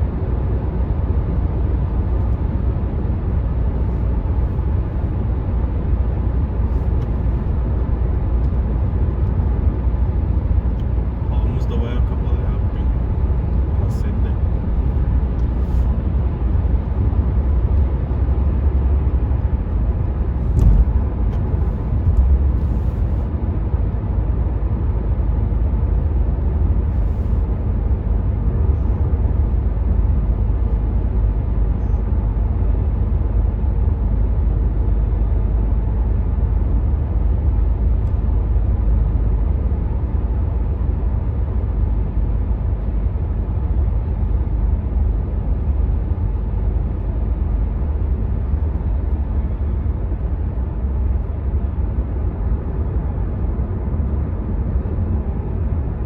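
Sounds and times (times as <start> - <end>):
road and wind noise in car: 0.0 - 56.0
brief thumps: 20.4 - 22.3.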